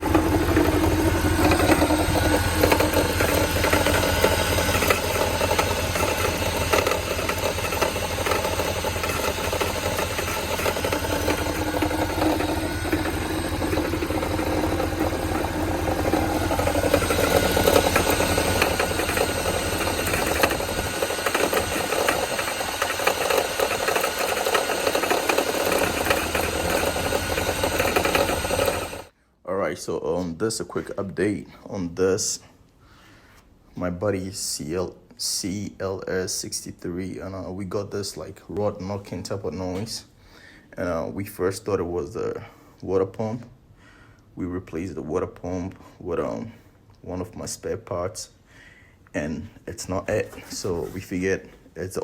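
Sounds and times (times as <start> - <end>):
car engine knocking: 0.1 - 29.1.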